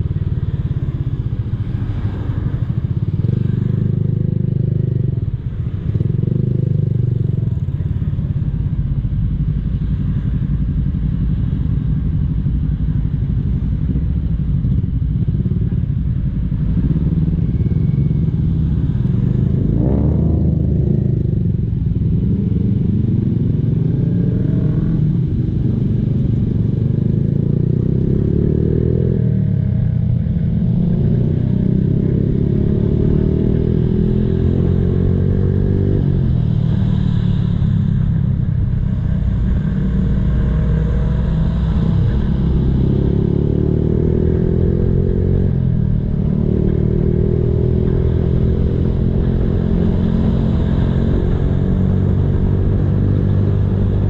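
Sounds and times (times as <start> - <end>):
motorcycle engine revving: 13.8 - 54.0.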